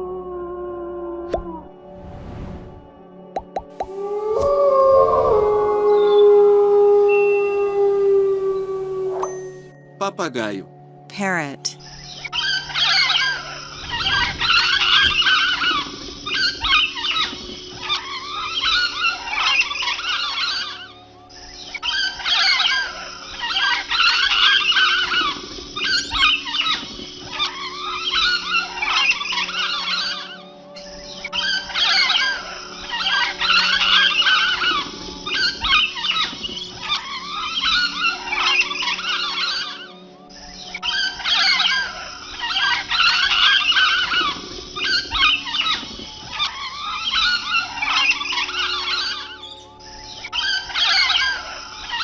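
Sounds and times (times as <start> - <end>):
flock of birds squawking: 11.9 - 52.0
parrots chattering and squawking: 21.9 - 30.1, 40.8 - 52.0.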